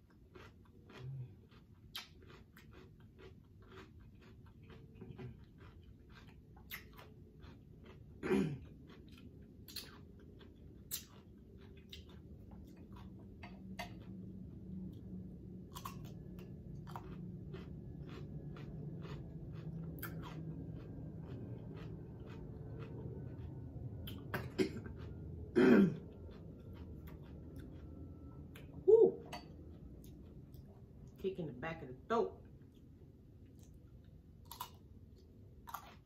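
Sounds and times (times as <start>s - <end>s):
chewing with wet mouth clicks: 0.0s - 31.2s, 32.6s - 36.0s
throat clearing: 8.2s - 8.7s, 24.3s - 24.9s, 25.5s - 26.1s.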